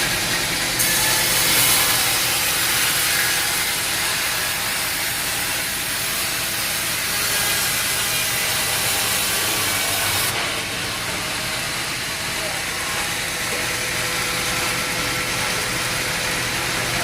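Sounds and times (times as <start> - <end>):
saw blade cutting log: 0.0 - 17.0.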